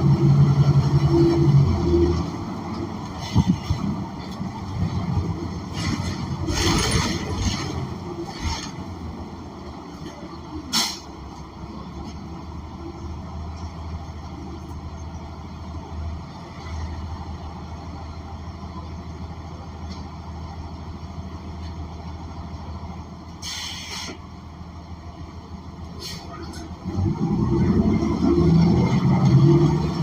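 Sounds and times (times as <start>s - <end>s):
bus engine humming: 0.0s - 30.0s
compressed air hiss: 23.4s - 24.2s.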